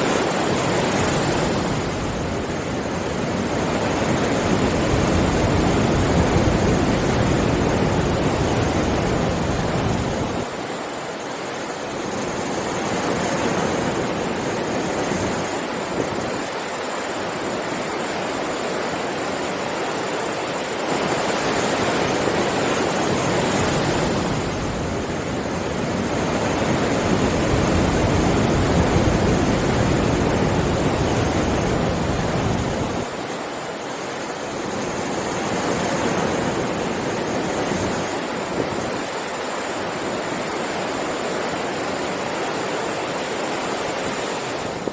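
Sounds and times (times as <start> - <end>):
sea waves breaking on shore: 0.0 - 44.9.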